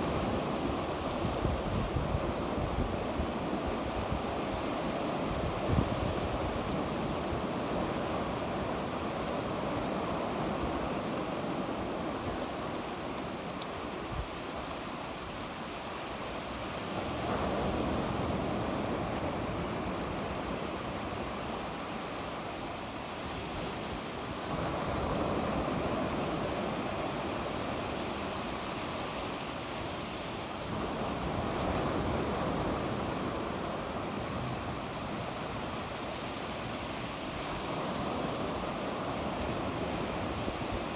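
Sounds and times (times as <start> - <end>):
wind on microphone: 0.0 - 8.9.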